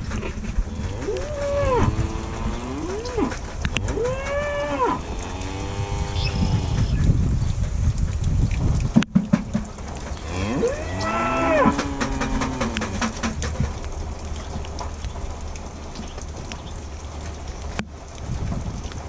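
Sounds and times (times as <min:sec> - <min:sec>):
cow mooing: 0:00.7 - 0:06.9, 0:10.2 - 0:13.2
sharp knocks: 0:08.9 - 0:09.9, 0:11.6 - 0:13.8.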